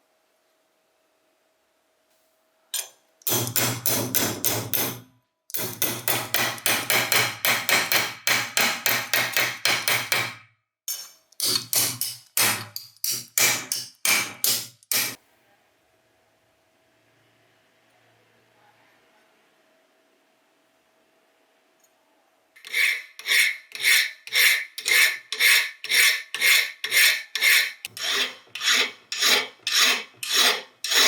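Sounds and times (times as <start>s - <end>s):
hammer striking metal: 2.8s - 15.2s.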